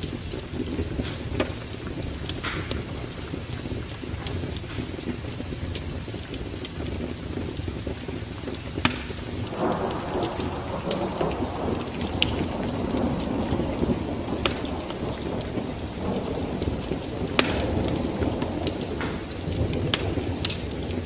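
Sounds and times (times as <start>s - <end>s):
wood fire crackling: 0.0s - 21.0s
rushing noise: 9.5s - 15.9s
low rumble: 9.5s - 16.6s.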